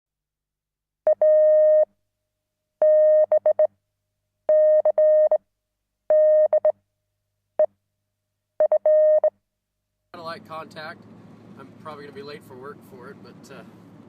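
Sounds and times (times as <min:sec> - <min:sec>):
morse code beeping: 0:01.1 - 0:01.9, 0:02.8 - 0:03.7, 0:04.5 - 0:05.4, 0:06.1 - 0:06.8, 0:08.6 - 0:09.3.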